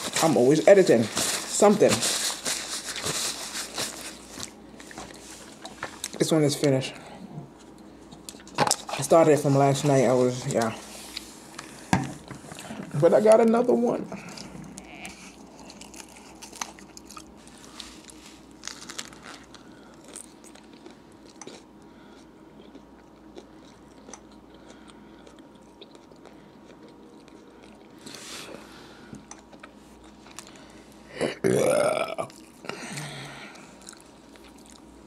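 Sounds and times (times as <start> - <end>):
person chewing sandwich: 2.2 - 6.2, 14.2 - 35.0
person burping: 31.2 - 33.3.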